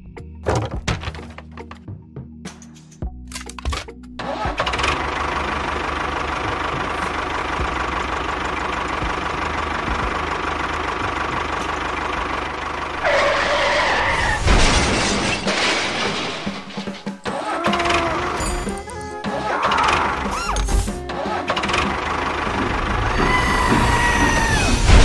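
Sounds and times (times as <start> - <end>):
tractor engine chugging: 4.2 - 14.0, 16.5 - 25.0.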